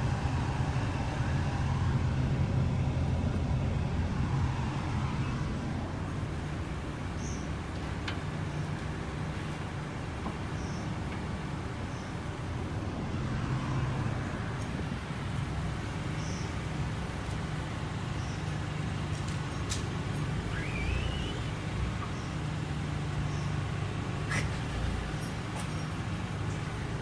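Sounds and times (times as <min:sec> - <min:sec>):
short rising squeak: 0:20.5 - 0:21.5.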